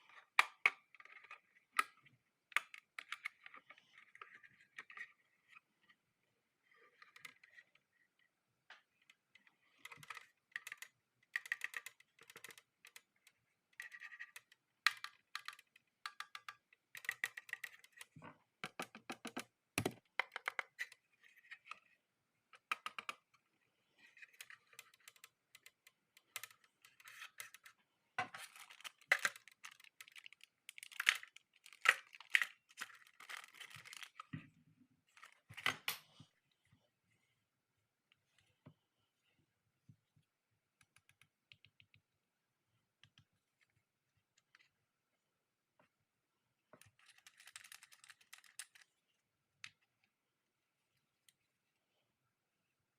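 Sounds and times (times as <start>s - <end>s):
plastic parts clicking and rustling: 8.8s - 23.4s, 24.0s - 34.4s, 46.8s - 49.0s.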